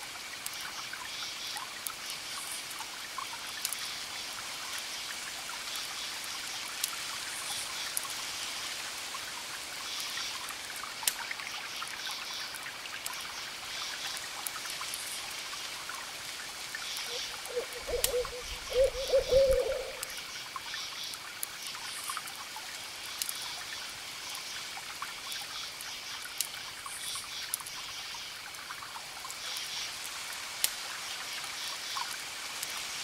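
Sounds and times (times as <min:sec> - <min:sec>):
steady fire hiss: 0:00.0 - 0:33.0.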